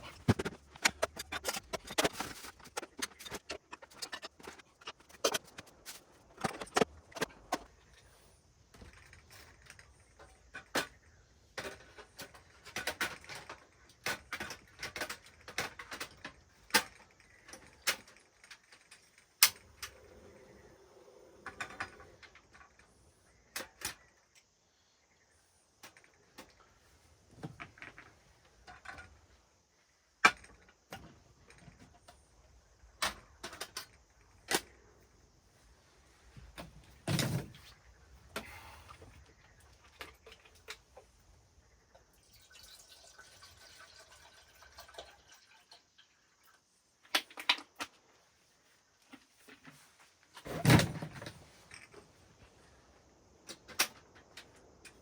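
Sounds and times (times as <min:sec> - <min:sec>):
camping gear clicks and clinks: 0:00.0 - 0:20.2, 0:25.8 - 0:41.4, 0:47.0 - 0:55.0.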